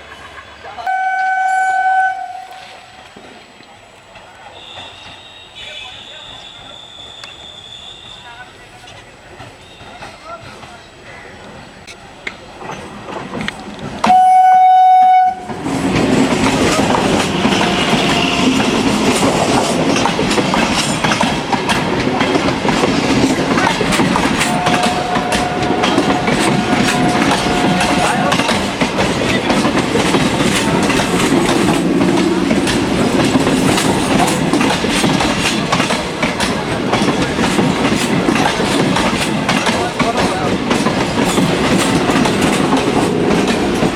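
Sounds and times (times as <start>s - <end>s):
train horn blast: 0.8s - 3.1s, 14.0s - 15.6s, 17.0s - 19.0s, 24.4s - 28.6s
train wheels clattering over rail joints: 8.8s - 14.2s, 15.4s - 43.9s.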